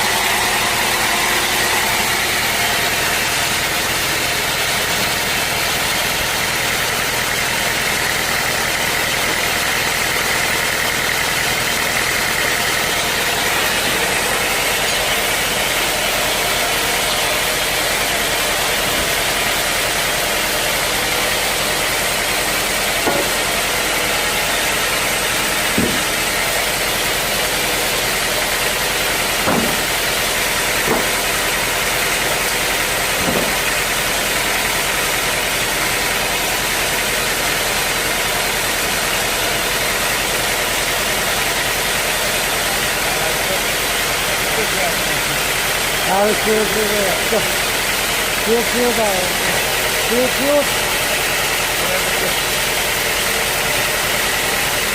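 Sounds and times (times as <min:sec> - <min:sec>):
sawmill machinery drone: 0:00.0 - 0:54.9
sharp knocks: 0:23.0 - 0:23.6, 0:25.6 - 0:26.4, 0:29.4 - 0:30.2, 0:30.8 - 0:31.4, 0:33.2 - 0:33.8.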